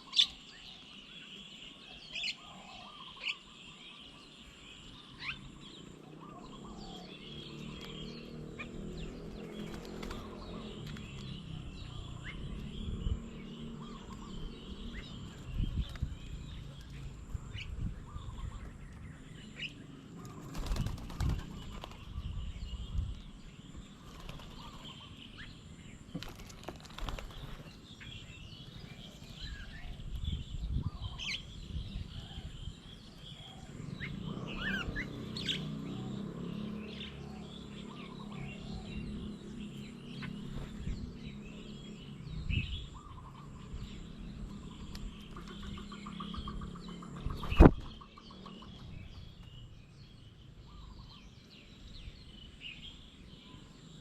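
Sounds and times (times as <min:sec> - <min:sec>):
small birds chirping: 0:00.0 - 0:54.0
bird wing flutters: 0:09.4 - 0:11.0, 0:20.3 - 0:22.2, 0:26.2 - 0:27.8, 0:47.3 - 0:47.9.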